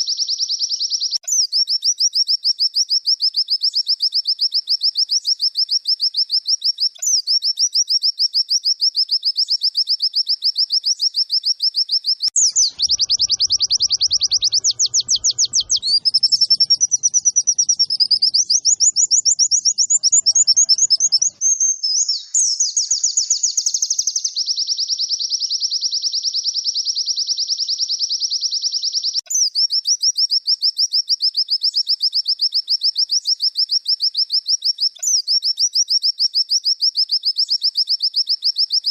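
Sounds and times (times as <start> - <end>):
white-eye trilling song: 12.4 - 21.4.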